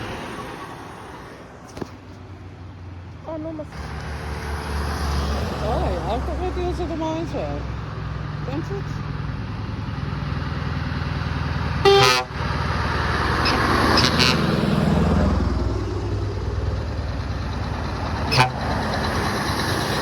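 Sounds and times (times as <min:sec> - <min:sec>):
lorries diesel engine rumble: 0:00.0 - 0:20.0
horn toot: 0:11.8 - 0:12.4, 0:13.4 - 0:14.5, 0:18.2 - 0:18.7.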